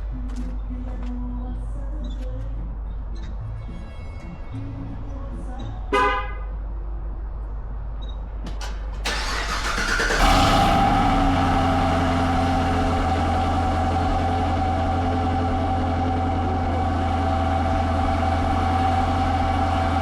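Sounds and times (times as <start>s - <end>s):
car engine starting and idling: 6.6s - 20.0s
engine cranking: 8.0s - 16.4s.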